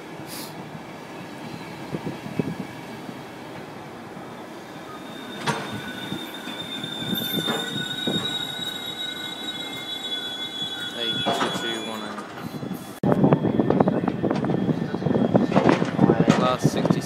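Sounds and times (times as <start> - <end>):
train moving on steel wheels: 0.0 - 17.0
wheel squeal on rails: 4.2 - 16.0
clacks over rail joints: 15.4 - 17.0.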